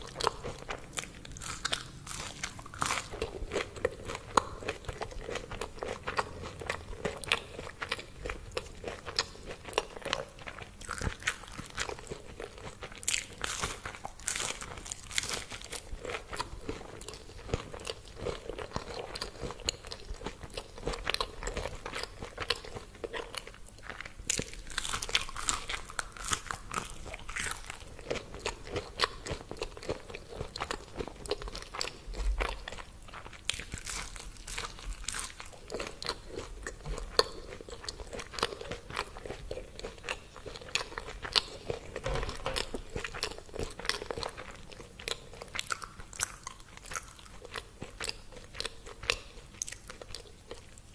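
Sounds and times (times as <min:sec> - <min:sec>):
person chewing crispy food: 0:00.0 - 0:50.9.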